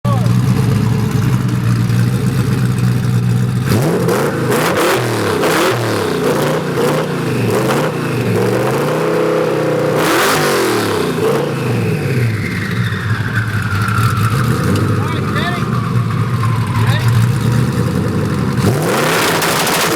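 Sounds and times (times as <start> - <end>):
car engine revving hard: 0.1 - 19.9
exhaust pops and cracks: 12.7 - 15.2, 16.6 - 19.9.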